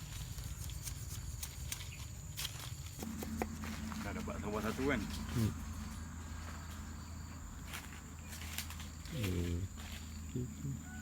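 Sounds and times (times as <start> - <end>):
insects chirring: 0.0 - 11.0
low hum: 3.0 - 10.5.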